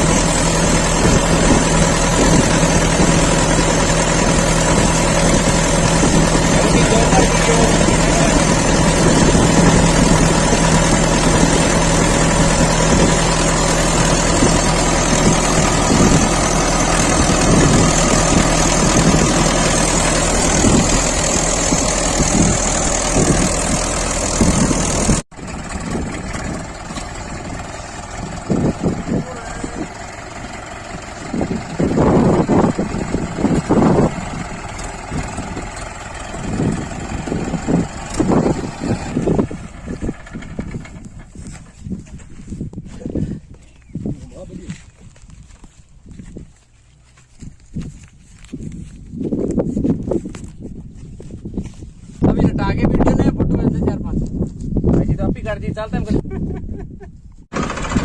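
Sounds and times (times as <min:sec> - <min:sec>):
engine bursts: 0:00.0 - 0:42.5, 0:57.5 - 0:58.0
tractor diesel engine running: 0:00.0 - 0:56.0, 0:57.4 - 0:58.0.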